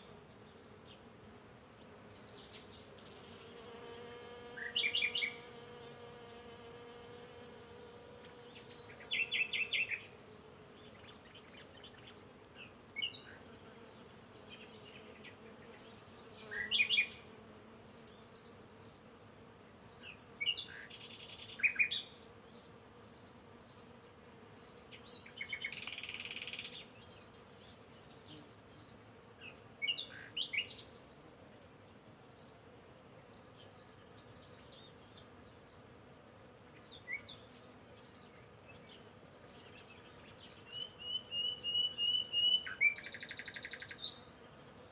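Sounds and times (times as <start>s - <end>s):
songbirds chirping and trilling: 0.3s - 31.4s, 36.8s - 44.3s.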